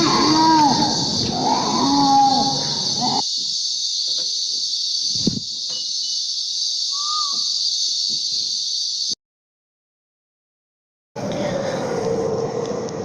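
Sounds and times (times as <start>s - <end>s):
loud wailing animal call: 0.0s - 3.2s
insect chorus: 0.0s - 9.2s
short whistled call: 6.9s - 7.6s.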